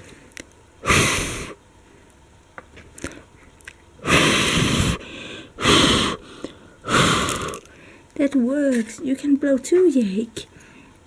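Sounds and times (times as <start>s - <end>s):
person blowing puffs of breath: 0.8s - 1.6s, 4.0s - 8.0s.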